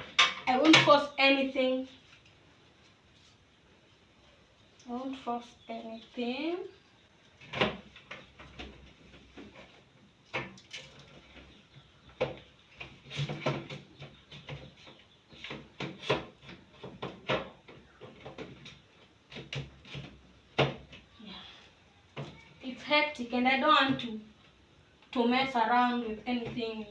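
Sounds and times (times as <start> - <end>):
fridge parts knocking and clattering: 10.3 - 21.1.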